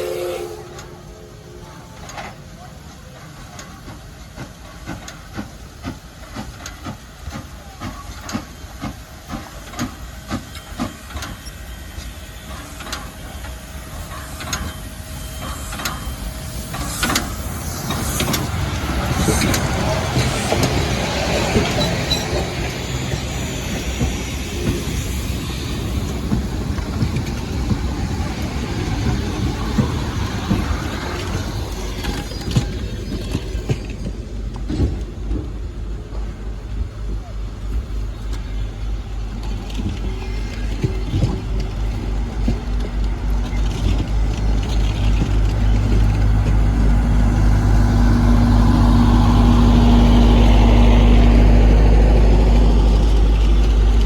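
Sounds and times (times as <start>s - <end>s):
loud steam hiss: 0.0s - 42.4s
steam locomotive chuffing: 0.0s - 54.0s
train running noise: 0.0s - 54.0s.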